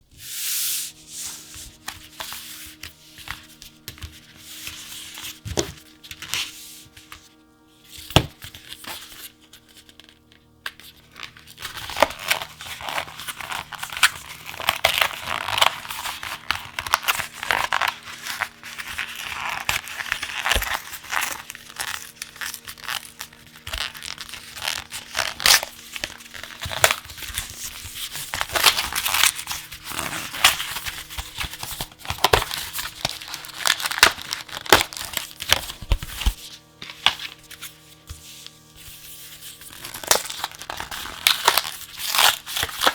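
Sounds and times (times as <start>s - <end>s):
soft background music: 0.0s - 42.9s
plastic packaging tearing and crinkling: 8.2s - 37.7s, 38.5s - 42.9s.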